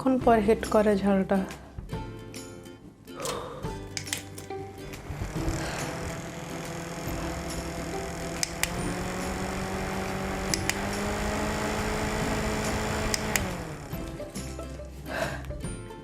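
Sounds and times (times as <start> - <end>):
light clicks: 3.2 - 5.0, 10.5 - 10.9
small motor humming: 4.7 - 14.3.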